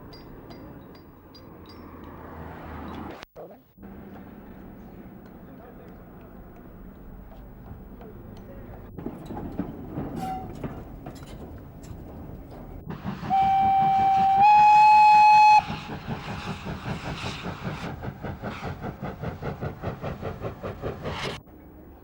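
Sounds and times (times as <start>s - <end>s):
steam locomotive chuffing: 7.5s - 21.4s
steam locomotive whistle: 12.9s - 16.1s.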